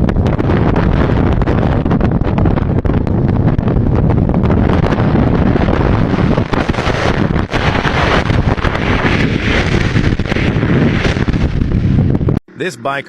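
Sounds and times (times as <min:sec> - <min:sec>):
wind buffeting microphone: 0:00.0 - 0:12.4.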